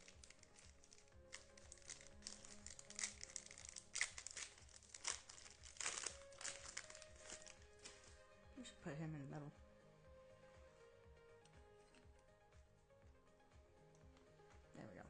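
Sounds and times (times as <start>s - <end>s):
plastic crinkling and rustling: 0.0s - 8.2s
soft background music: 0.0s - 15.0s.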